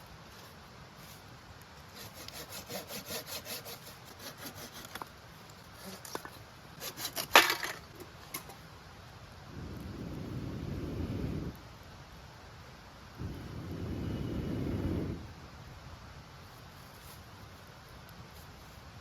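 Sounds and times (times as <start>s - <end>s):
hand saw cutting wood: 1.9s - 5.1s, 5.8s - 7.8s
wood cracking: 5.8s - 8.5s.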